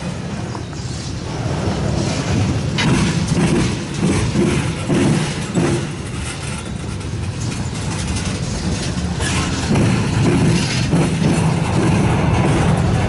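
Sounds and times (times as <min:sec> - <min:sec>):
freight train wheels rumbling on rails: 0:00.0 - 0:13.0
wheel clacks: 0:02.7 - 0:13.0.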